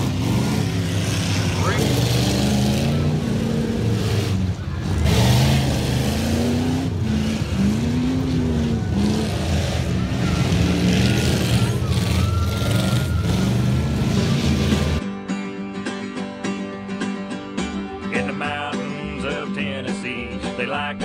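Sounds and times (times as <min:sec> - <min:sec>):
racing engines revving: 0:00.0 - 0:15.0.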